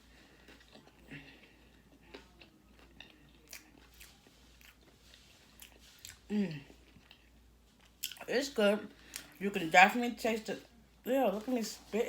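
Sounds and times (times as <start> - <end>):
chewing crispy fried chicken: 0.0 - 9.4.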